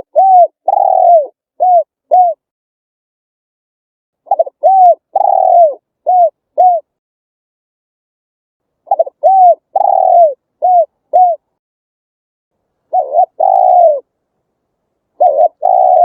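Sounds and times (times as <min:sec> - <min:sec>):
dove cooing: 0:00.0 - 0:02.4, 0:04.3 - 0:06.9, 0:08.9 - 0:11.5, 0:12.9 - 0:14.1, 0:15.2 - 0:16.0.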